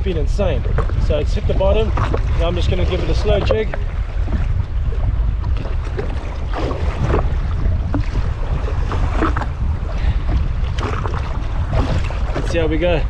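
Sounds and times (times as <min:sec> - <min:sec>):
water lapping: 0:00.0 - 0:13.0
wind buffeting microphone: 0:00.0 - 0:13.0
splashy slaps of water: 0:05.5 - 0:09.5, 0:10.7 - 0:12.6.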